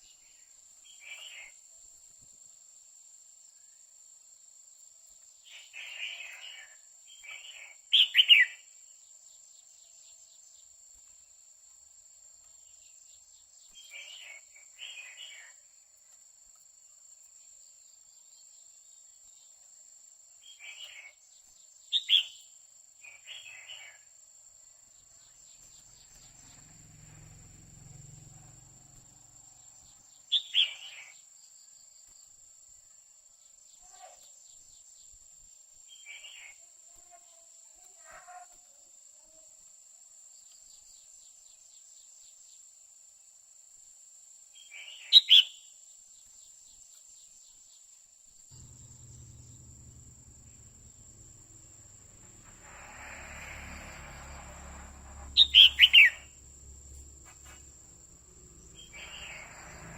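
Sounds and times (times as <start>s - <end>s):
high insect drone: 24.9s - 30.2s, 48.6s - 59.9s
bird calling sharp notes: 55.2s - 59.9s.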